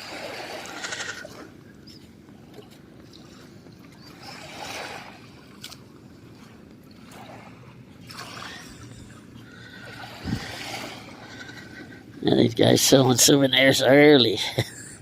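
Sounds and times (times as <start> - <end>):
small waves washing on beach: 0.0 - 1.6, 4.2 - 11.4.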